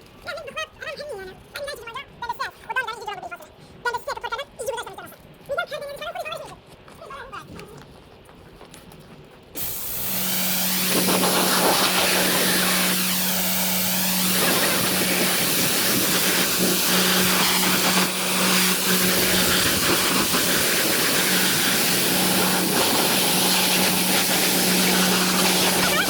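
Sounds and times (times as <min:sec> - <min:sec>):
pressure washer spraying water: 0:09.6 - 0:26.0
washer motor and pump humming: 0:09.6 - 0:26.0.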